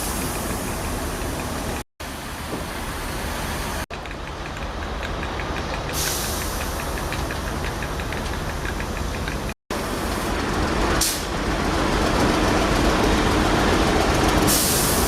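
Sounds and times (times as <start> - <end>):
large vehicle engine running: 0.0 - 15.0
burst of hiss: 6.0 - 6.9, 14.5 - 15.0.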